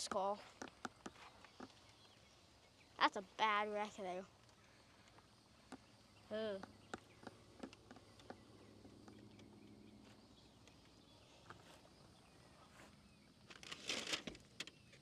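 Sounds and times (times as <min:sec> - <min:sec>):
rustling and crunching: 0:11.4 - 0:15.0.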